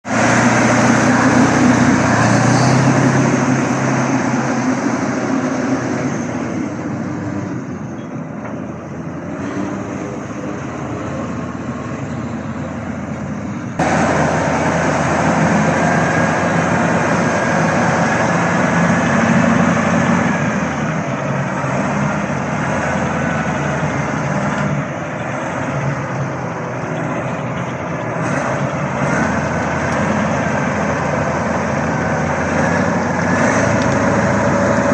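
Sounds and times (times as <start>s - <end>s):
tractor diesel engine droning: 0.0s - 34.9s.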